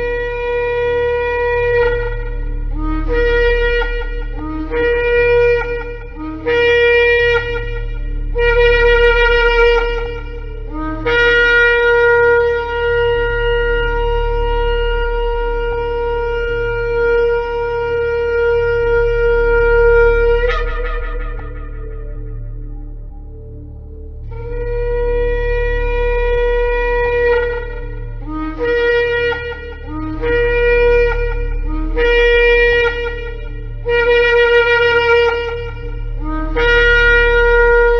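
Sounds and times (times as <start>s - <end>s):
shofar blasts: 0.0s - 23.3s, 24.3s - 37.9s
steady low hum: 0.0s - 37.9s.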